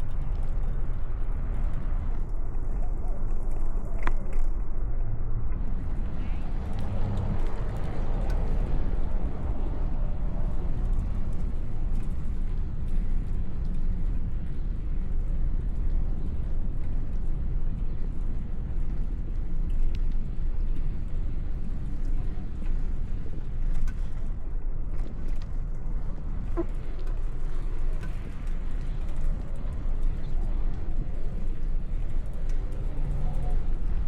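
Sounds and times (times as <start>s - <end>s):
wind rumble on microphone: 0.0s - 34.0s
road traffic: 5.6s - 11.7s.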